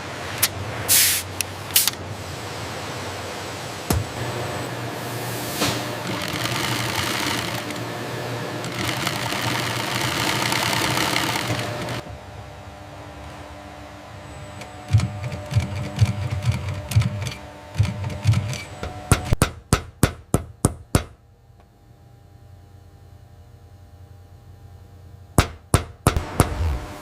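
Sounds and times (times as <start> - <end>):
machinery thumping: 3.9 - 4.4, 25.4 - 27.0
sharp mechanical knocks: 14.6 - 21.2, 25.4 - 26.9.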